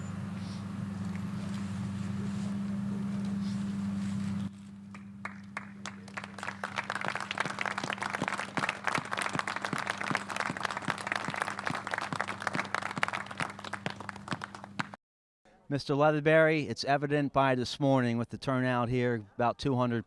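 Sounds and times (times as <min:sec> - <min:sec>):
low hum: 0:00.0 - 0:15.0
crowd applauding: 0:04.9 - 0:15.0.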